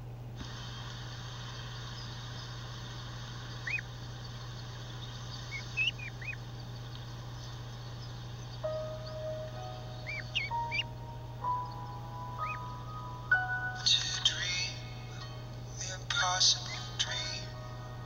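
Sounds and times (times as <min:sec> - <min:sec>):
steady hiss and low hum: 0:00.0 - 0:18.0
short high bird chirps: 0:07.4 - 0:13.4.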